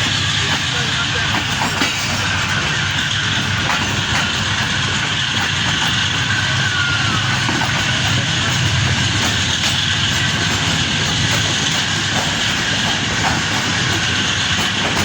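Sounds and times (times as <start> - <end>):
train rumbling along track: 0.0 - 15.0
high squeal: 5.9 - 8.7.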